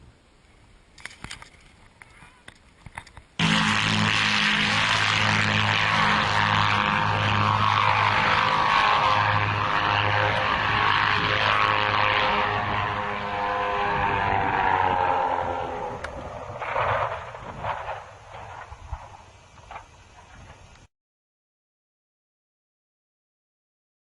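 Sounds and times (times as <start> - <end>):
loud engine-like roar: 3.4 - 18.1.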